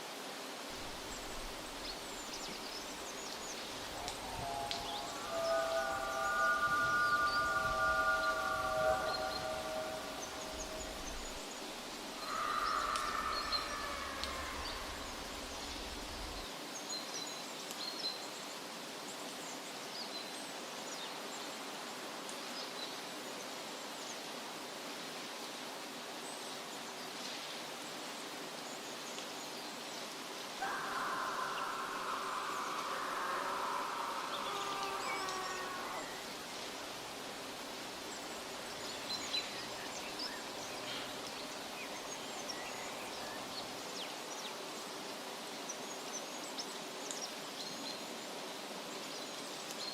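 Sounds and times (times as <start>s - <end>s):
outdoor hiss: 0.0s - 49.9s
ringing tones: 4.1s - 11.2s.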